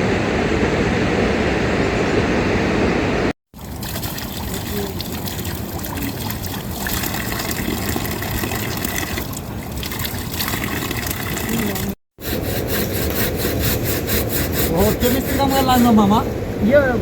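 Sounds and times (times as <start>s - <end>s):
running water: 3.5s - 16.3s
rhythmic rasping strokes: 12.2s - 16.2s.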